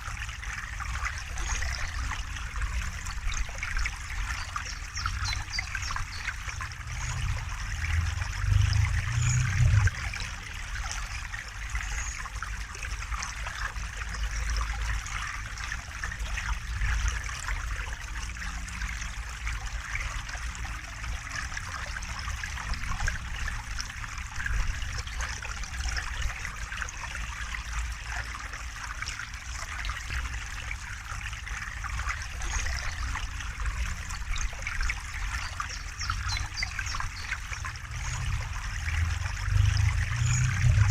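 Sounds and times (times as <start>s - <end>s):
river water flowing: 0.0s - 40.9s
low rumble: 6.8s - 10.5s, 37.7s - 40.9s.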